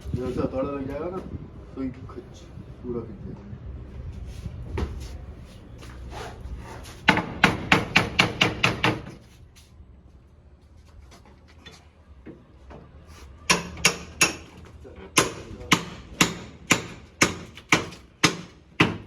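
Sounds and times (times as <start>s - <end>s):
hard knocking blows: 7.0s - 9.2s.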